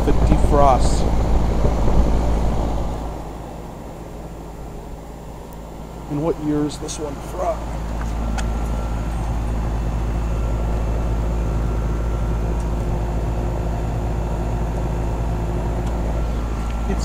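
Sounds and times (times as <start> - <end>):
compressor humming: 0.0 - 17.0
condenser fan blowing: 0.0 - 17.0.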